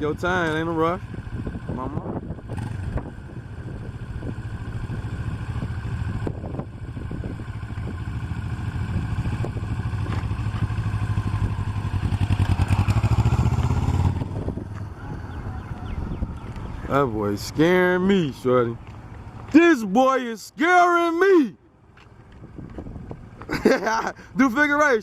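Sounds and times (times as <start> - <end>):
motorcycle engine passing: 0.4 - 19.5.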